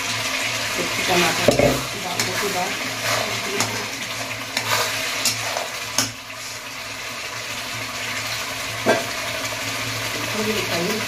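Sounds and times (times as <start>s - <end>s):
masala sizzling in a pan: 0.0s - 11.0s
spatula clacking against pan: 4.6s - 6.2s.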